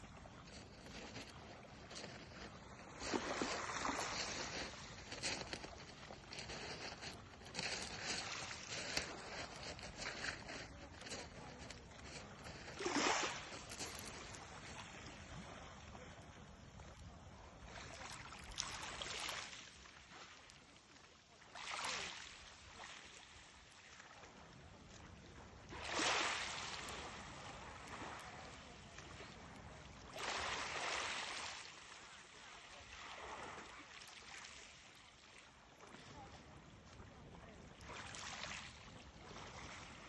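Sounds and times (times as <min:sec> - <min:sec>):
sea water splashing and rushing: 0:03.0 - 0:05.2, 0:12.7 - 0:15.1, 0:30.1 - 0:34.8.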